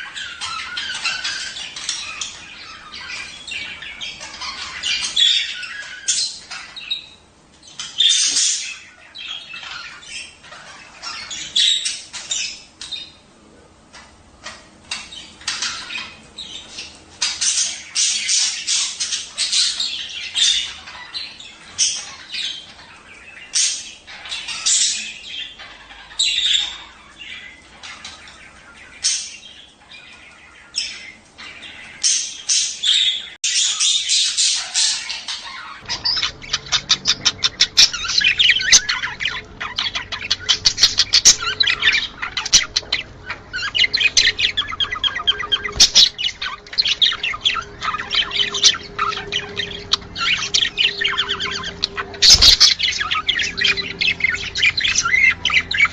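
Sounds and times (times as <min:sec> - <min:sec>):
budgerigars chattering: 0:00.0 - 0:13.2, 0:13.9 - 0:55.9.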